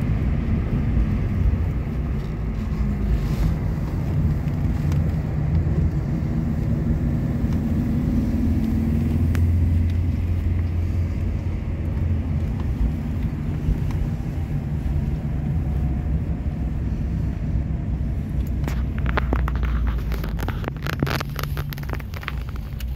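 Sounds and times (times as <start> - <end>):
car engine rumble: 0.0 - 22.9.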